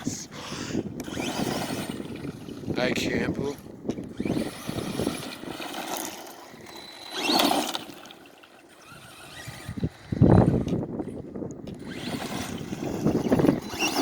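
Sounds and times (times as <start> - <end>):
electric motor whine: 0.3 - 3.0, 3.6 - 14.0.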